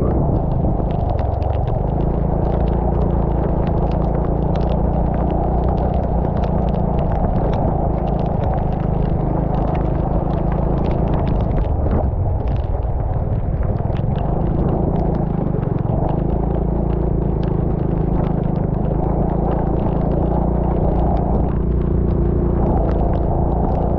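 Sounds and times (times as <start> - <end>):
rain ticking on camera: 0.0 - 23.9
vehicle engine running: 0.0 - 23.9
wind rumble on microphone: 0.0 - 23.9.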